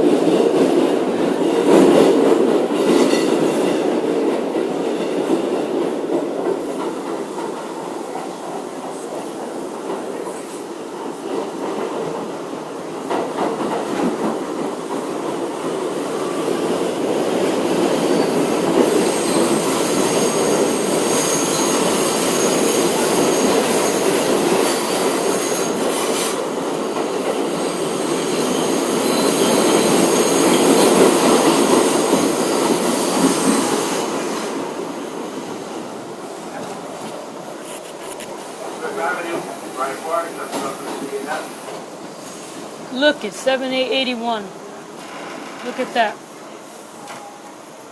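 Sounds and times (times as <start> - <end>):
subway car rumbling on rails: 0.0 - 43.8, 44.5 - 47.9
high-pitched wheel squeal: 19.0 - 25.8.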